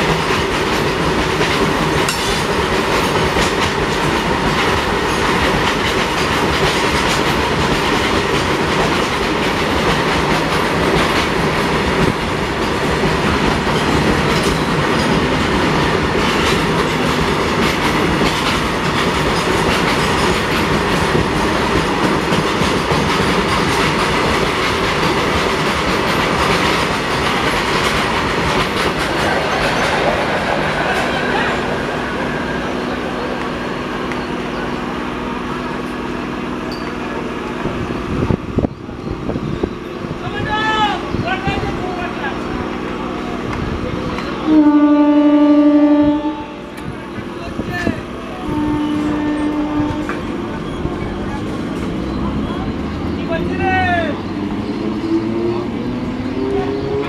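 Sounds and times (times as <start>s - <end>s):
wheels clacking over rail joints: 0.0s - 34.7s
steel wheels rumbling on rail: 0.0s - 57.0s.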